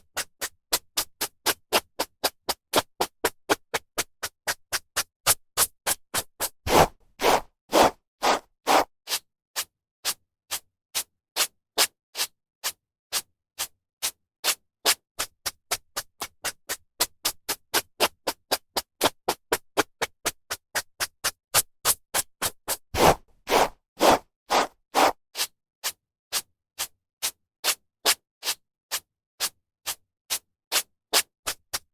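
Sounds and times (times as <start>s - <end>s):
hairbrush swishing through hair: 6.7s - 8.9s, 23.0s - 25.2s.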